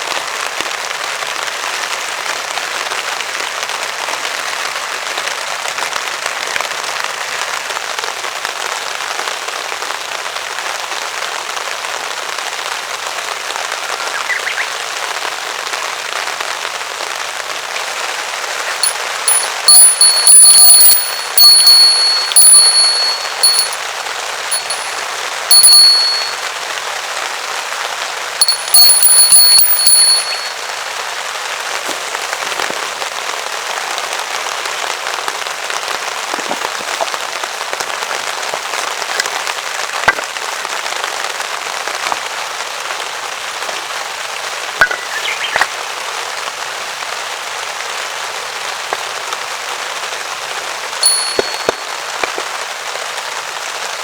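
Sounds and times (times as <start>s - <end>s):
heavy rain on a tarp: 0.0s - 18.5s, 30.8s - 51.1s, 51.8s - 54.0s
high-pitched ringing bursts: 18.8s - 23.8s, 24.5s - 26.4s, 28.4s - 30.8s, 51.0s - 51.8s.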